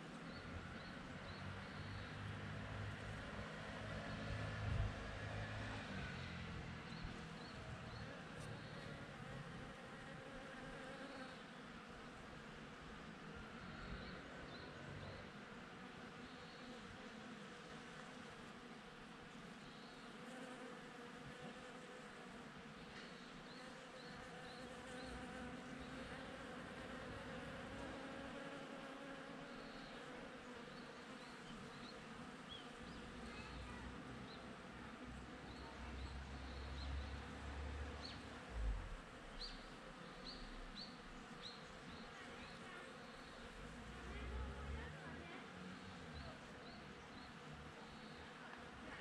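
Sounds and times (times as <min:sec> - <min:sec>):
honeybees buzzing: 0:13.8 - 0:49.0.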